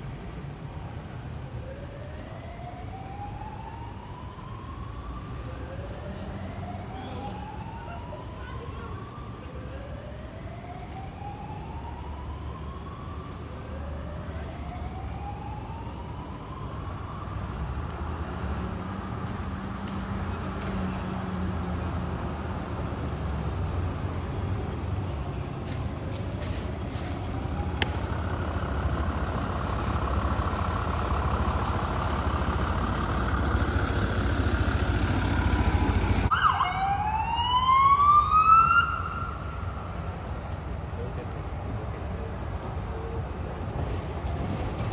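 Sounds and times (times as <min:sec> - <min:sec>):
fire truck siren wailing: 0:01.5 - 0:24.0, 0:25.9 - 0:40.1
truck engine rumble: 0:14.2 - 0:36.7, 0:38.4 - 0:44.9.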